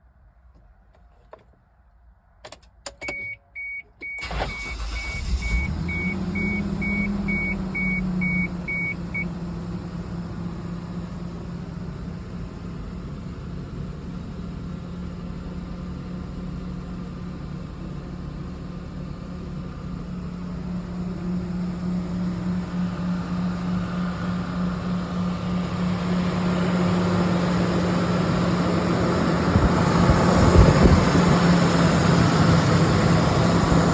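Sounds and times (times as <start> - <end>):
car warning chime: 2.9 - 9.3
engine cranking and starting: 4.0 - 7.9
engine idling: 4.2 - 33.9.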